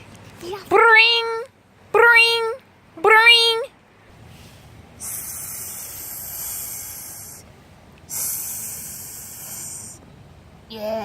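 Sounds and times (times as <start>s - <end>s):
person hissing like a snake: 5.0s - 7.5s, 8.1s - 10.0s.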